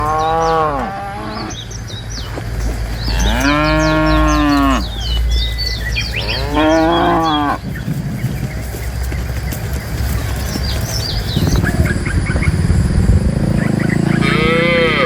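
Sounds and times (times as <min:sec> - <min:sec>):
cows mooing: 0:00.0 - 0:01.7, 0:03.0 - 0:07.7, 0:13.6 - 0:15.0.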